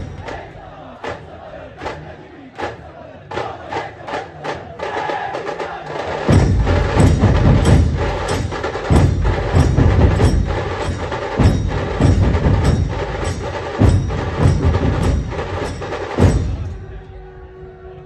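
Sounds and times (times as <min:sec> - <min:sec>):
fast drum rolls: 0:00.0 - 0:16.9
heavy drum strokes: 0:03.3 - 0:17.3.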